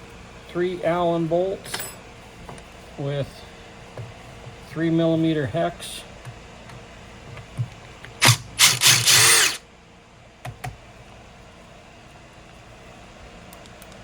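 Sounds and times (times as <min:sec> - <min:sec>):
power drill spinning: 0:08.2 - 0:09.6.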